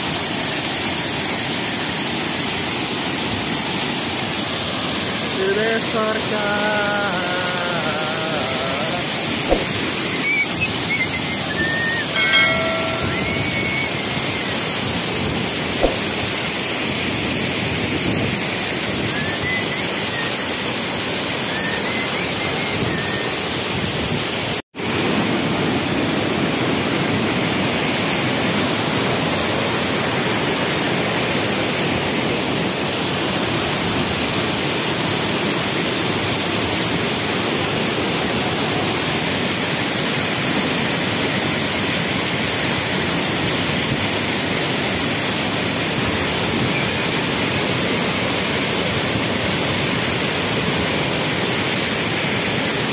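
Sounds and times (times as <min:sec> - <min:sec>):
waterfall rushing: 0:00.0 - 0:52.9
faint high chirps: 0:09.5 - 0:14.6.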